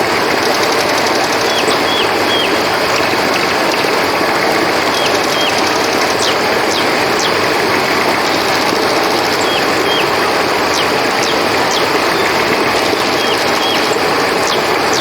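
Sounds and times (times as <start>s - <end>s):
flowing river water: 0.0s - 15.0s
high cricket trill: 0.2s - 15.0s.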